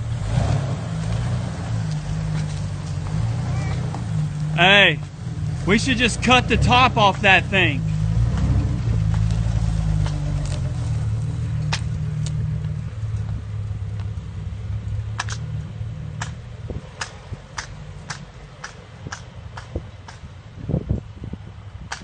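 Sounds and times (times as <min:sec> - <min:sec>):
vehicle engine running: 0:00.0 - 0:21.8
sharp clicks: 0:15.2 - 0:16.4, 0:17.0 - 0:20.2.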